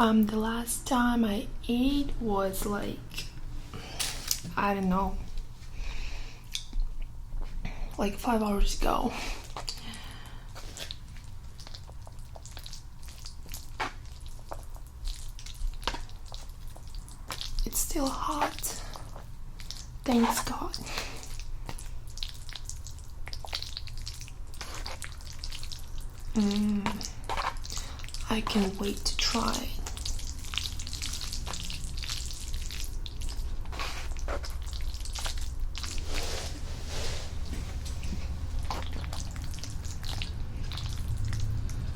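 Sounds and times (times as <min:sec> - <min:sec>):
wet sticky food squelches: 0:09.1 - 0:41.9.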